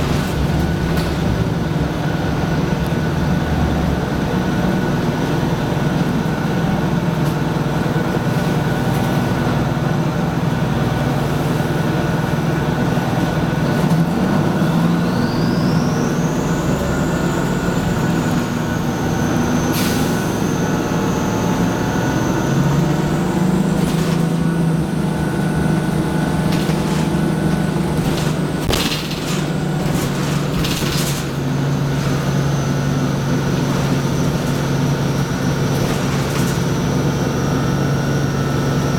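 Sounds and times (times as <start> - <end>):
diesel bus engine running: 0.0 - 38.9
sharp knocks and rattles: 23.6 - 24.6, 26.0 - 37.1.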